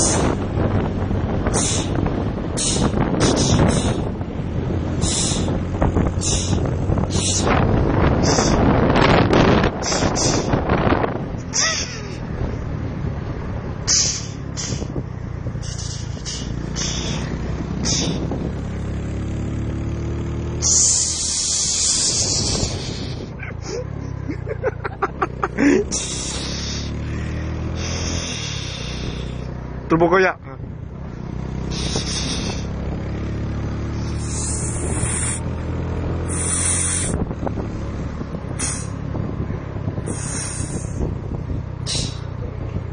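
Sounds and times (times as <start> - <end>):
turbo hissing bursts: 0.0 - 0.4, 1.5 - 2.0, 2.6 - 4.1, 5.0 - 5.6, 6.2 - 7.6, 9.8 - 10.6, 13.9 - 14.9, 15.6 - 18.3, 20.6 - 23.3, 25.9 - 27.0, 27.7 - 29.5, 31.6 - 32.7, 33.9 - 35.4, 36.2 - 37.2, 38.6 - 39.0, 40.0 - 41.0, 41.8 - 42.3
motorcycle engine running: 0.0 - 42.9.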